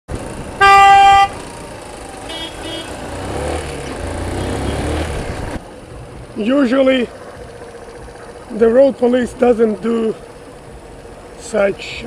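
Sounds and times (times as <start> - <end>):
engine revving: 0.1 - 5.6
traffic noise: 0.1 - 12.0
vehicle horn honking: 0.6 - 1.4, 2.2 - 3.1.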